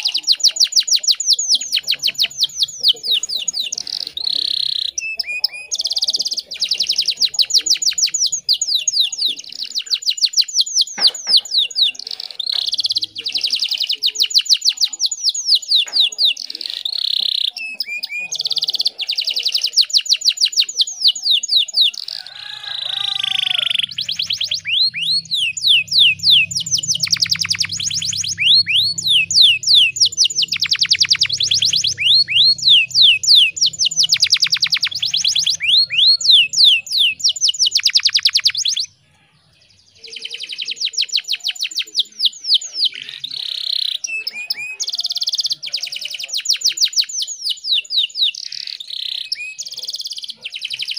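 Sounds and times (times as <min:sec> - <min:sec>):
canary singing trills: 0:00.0 - 0:50.9.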